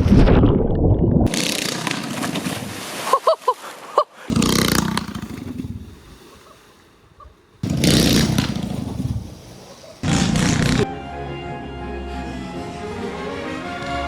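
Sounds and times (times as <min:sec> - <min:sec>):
minibike engine revving: 0:04.3 - 0:05.6, 0:07.6 - 0:10.9.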